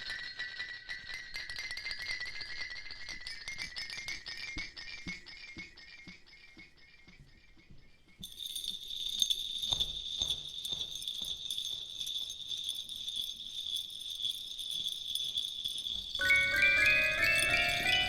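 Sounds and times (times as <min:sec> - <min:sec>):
jingle bells shaking: 0:08.2 - 0:18.0
chiming mallet notes: 0:15.8 - 0:18.0.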